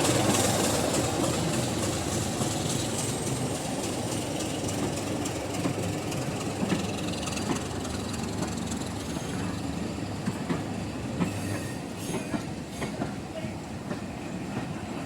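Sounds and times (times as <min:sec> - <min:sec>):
train wheels clicking over rail joints: 0:00.0 - 0:14.8.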